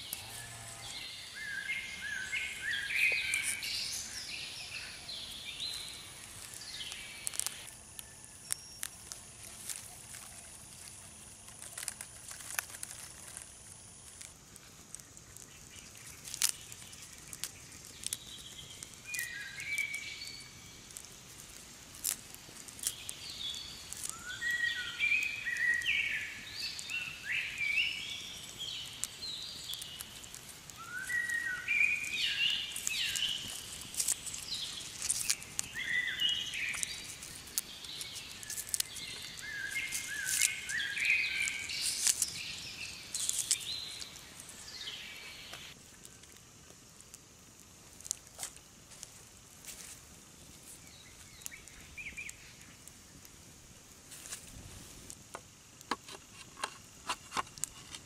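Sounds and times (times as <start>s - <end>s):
birds chirping: 0.0s - 13.4s, 15.0s - 21.2s, 22.8s - 45.8s, 50.7s - 53.3s.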